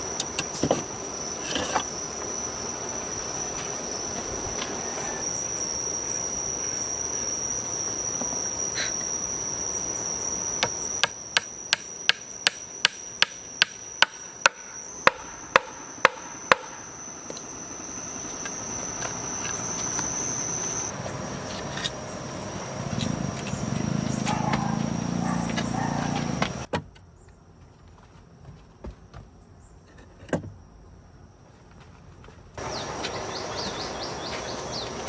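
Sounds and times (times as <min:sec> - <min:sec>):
high-pitched insect drone: 0:00.0 - 0:26.7, 0:32.6 - 0:35.0
sharp knocks: 0:10.6 - 0:16.8.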